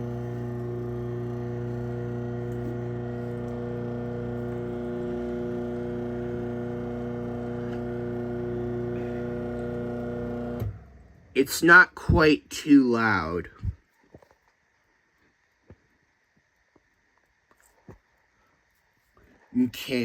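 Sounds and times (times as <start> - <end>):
garage door opener motor humming: 0.0 - 11.2.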